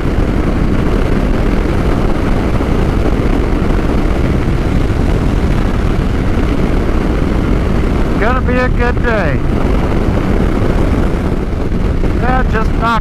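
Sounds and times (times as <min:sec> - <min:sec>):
motorcycle road noise: 0:00.0 - 0:13.0
wind rush: 0:00.0 - 0:13.0.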